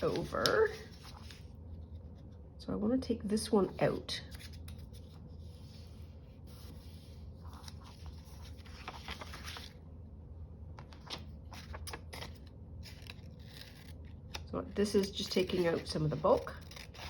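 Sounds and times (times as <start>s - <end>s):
paper scraping and crinkling: 4.2s - 9.8s, 10.8s - 14.1s, 14.9s - 17.0s
paper handling clicks: 8.6s - 9.7s, 10.8s - 17.0s.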